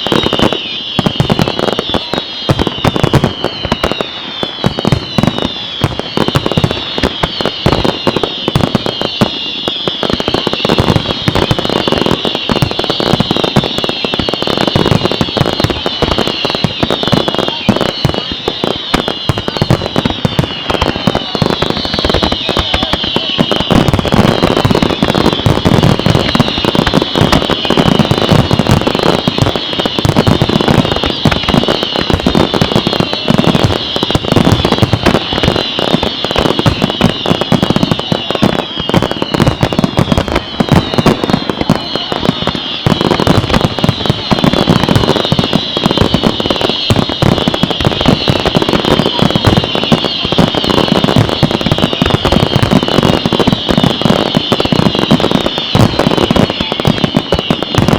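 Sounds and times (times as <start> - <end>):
fireworks bangs and crackling: 0.0 - 57.9
fireworks whistles: 0.0 - 57.9.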